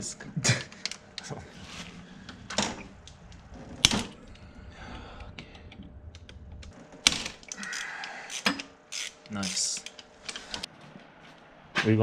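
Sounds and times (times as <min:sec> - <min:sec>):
hand tools clicking on metal: 0:07.5 - 0:10.7.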